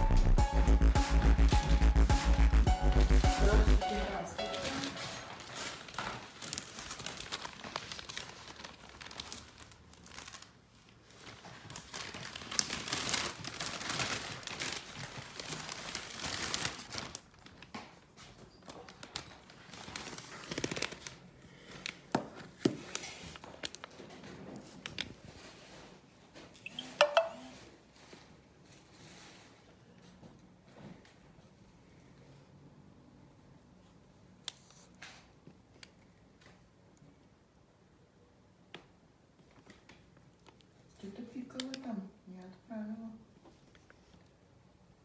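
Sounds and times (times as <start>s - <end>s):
material rustling and crinkling: 4.5s - 31.8s.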